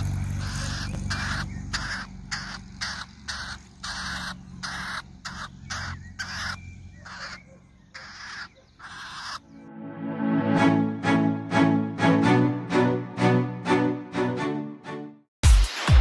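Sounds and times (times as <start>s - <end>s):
harsh raspy bird calls: 0.0s - 9.6s.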